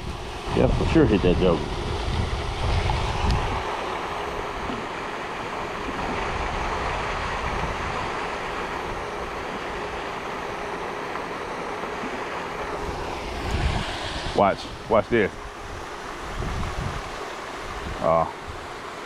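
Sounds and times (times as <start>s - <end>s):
wind buffeting microphone: 0.0s - 4.9s, 5.8s - 8.2s, 12.8s - 18.7s
fountain spray splashing on water: 0.0s - 19.0s.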